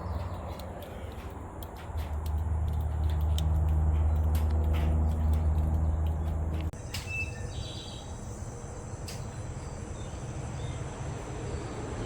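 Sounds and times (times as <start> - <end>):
bird chirp: 5.0 - 12.0.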